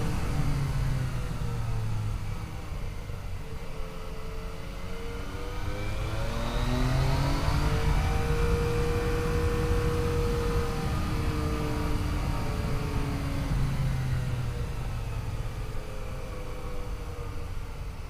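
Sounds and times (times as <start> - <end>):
motorcycle engine accelerating: 4.6 - 15.7
wind rumbling on helmet: 5.6 - 18.0.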